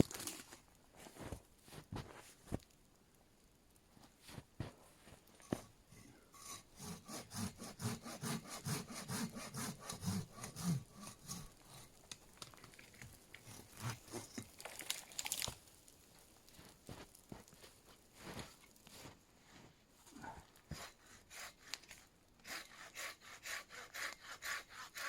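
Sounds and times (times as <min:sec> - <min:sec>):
hand saw cutting wood: 0:06.4 - 0:12.0, 0:13.4 - 0:14.5, 0:20.7 - 0:25.0.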